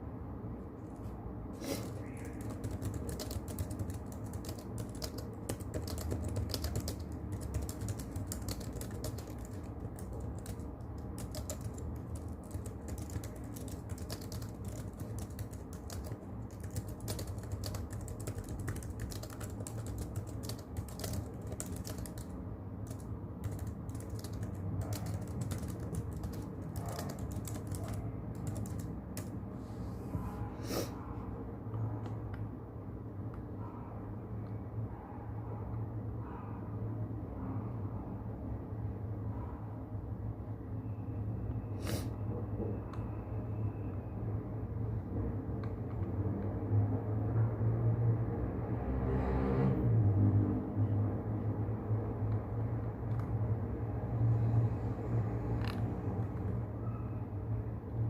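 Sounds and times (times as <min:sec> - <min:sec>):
keyboard typing: 0:01.0 - 0:29.4, 0:52.3 - 0:53.5, 0:55.5 - 0:57.0.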